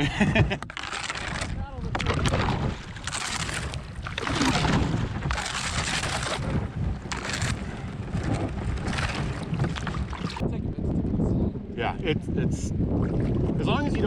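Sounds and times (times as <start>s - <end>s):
wind rumbling on microphone: 0.0s - 14.0s
rushing splashing river water: 0.8s - 10.4s.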